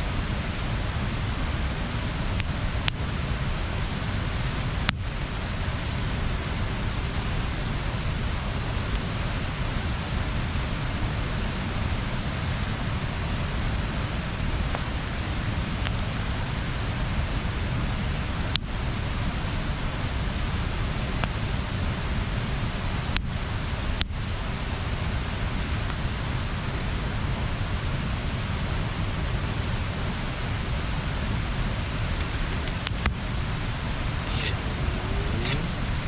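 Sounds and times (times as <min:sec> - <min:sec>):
bonfire burning with rushing hiss: 0:00.0 - 0:36.0
burning wood popping: 0:31.7 - 0:36.0.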